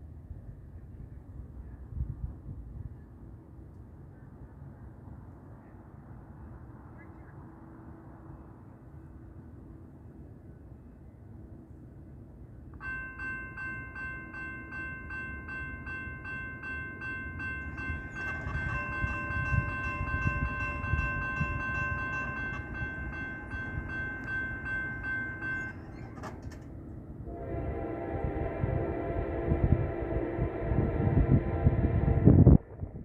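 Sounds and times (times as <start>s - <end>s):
rumble of passing train: 0.0s - 33.0s
faint ringing: 12.8s - 26.9s
locomotive horn chord: 13.6s - 26.6s, 27.2s - 32.5s.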